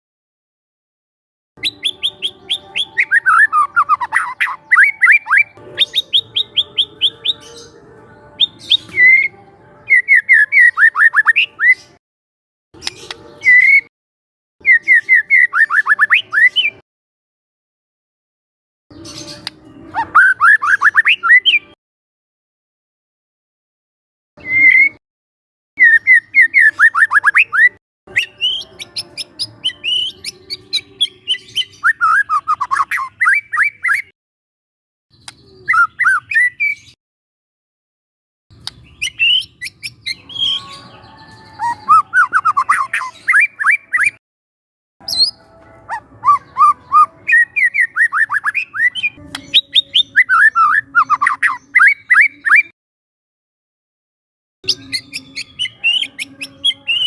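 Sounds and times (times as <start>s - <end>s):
shama bird singing: 1.6s - 12.0s, 12.8s - 13.9s, 14.6s - 16.8s, 18.9s - 21.8s, 24.4s - 25.0s, 25.8s - 34.1s, 35.1s - 37.0s, 38.6s - 44.2s, 45.0s - 52.7s, 54.6s - 57.0s.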